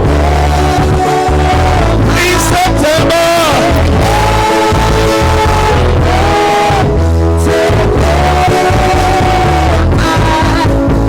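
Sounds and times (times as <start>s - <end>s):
bass: 0.0s - 11.0s
sustained keyboard: 1.6s - 6.1s.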